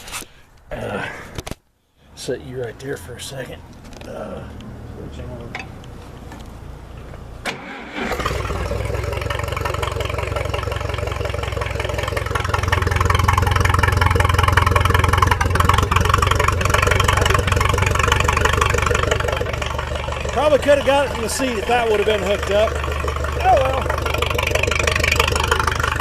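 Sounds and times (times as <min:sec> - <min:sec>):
tractor engine running: 0:03.0 - 0:26.0
engine cranking: 0:05.5 - 0:26.0.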